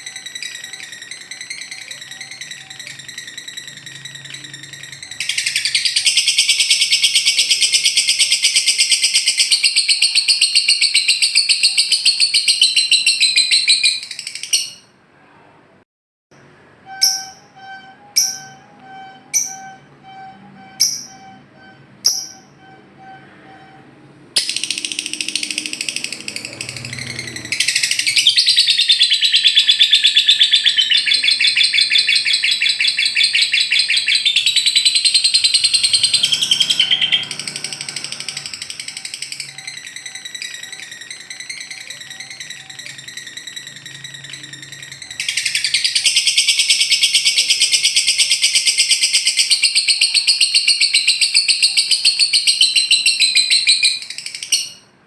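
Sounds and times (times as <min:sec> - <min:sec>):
lovebird chattering trills: 0:00.0 - 0:14.8, 0:24.4 - 0:54.9
steady tone: 0:16.4 - 0:28.3.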